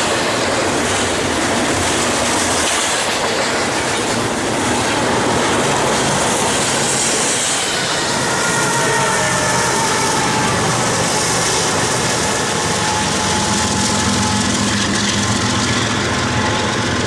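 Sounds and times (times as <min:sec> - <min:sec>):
train engine hum: 0:00.0 - 0:17.0
wheel squeal: 0:07.3 - 0:17.0.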